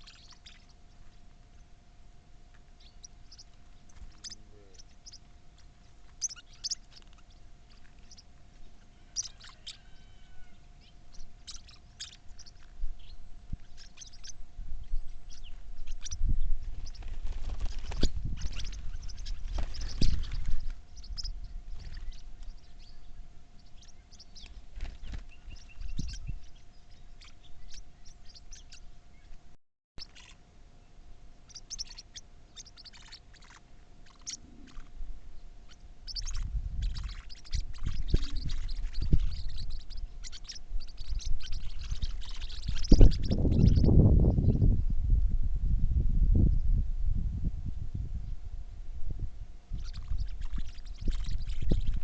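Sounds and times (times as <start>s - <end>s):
birds chirping: 0.0s - 1.8s, 2.4s - 44.9s, 49.6s - 52.0s
faint steady hum: 0.0s - 52.0s
low rumbling noise: 33.8s - 52.0s.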